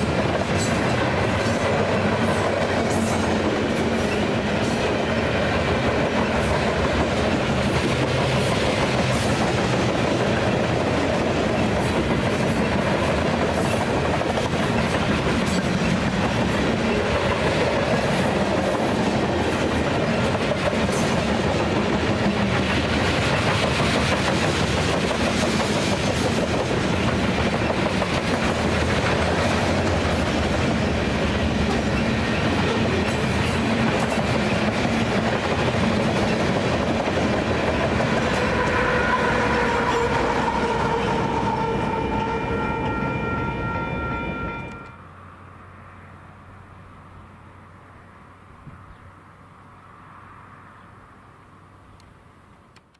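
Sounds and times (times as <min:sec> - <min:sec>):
train wheels on rails: 0:00.0 - 0:45.0.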